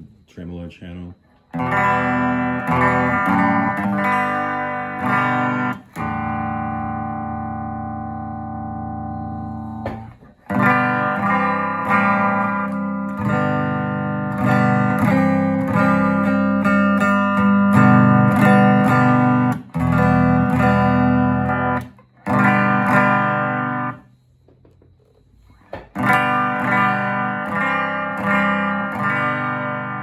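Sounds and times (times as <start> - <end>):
electric guitar chords through amp: 1.5 - 24.0, 25.6 - 30.0.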